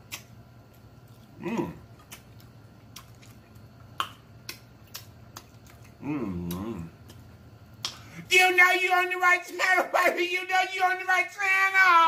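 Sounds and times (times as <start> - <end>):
person chewing with wet smacks: 0.0 - 8.1
person humming mm: 1.4 - 1.8, 6.0 - 6.9.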